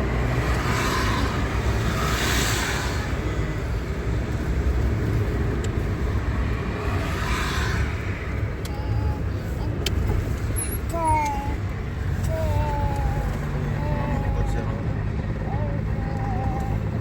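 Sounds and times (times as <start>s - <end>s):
road traffic rumble: 0.0s - 17.0s
vehicles swishing past: 0.0s - 17.0s.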